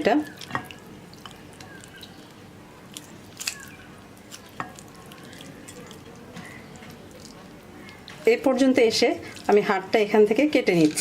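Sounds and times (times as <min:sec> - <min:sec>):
wet meat handling sounds: 0:00.0 - 0:08.4.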